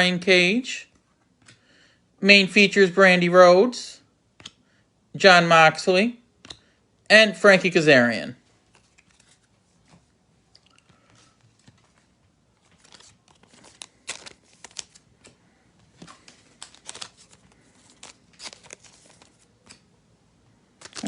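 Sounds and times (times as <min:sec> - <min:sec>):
wrapper being torn and crinkled: 0:12.8 - 0:15.1, 0:20.8 - 0:21.0.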